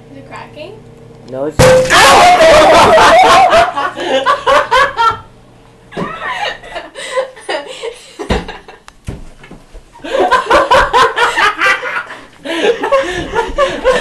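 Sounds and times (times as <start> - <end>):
sharp thump: 1.6 - 2.1
young men laughing and exclaiming: 1.9 - 5.1.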